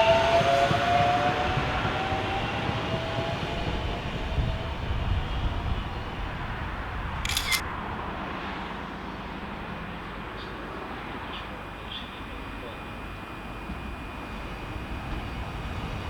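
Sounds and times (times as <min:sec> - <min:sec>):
train rumbling: 0:00.0 - 0:08.0, 0:09.3 - 0:16.0.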